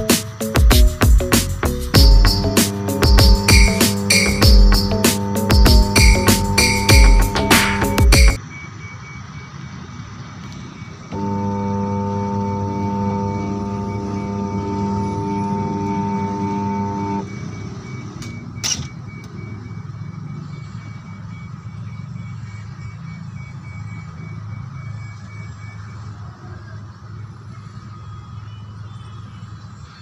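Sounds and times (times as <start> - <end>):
washing machine motor humming: 0.0 - 8.4, 11.1 - 17.5.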